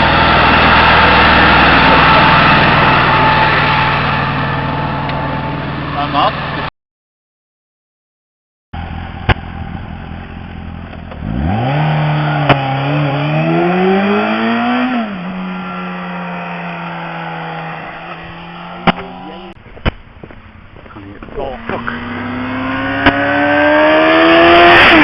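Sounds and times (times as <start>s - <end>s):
vehicle engine passing by: 0.0s - 6.7s, 8.8s - 19.6s, 20.9s - 25.0s.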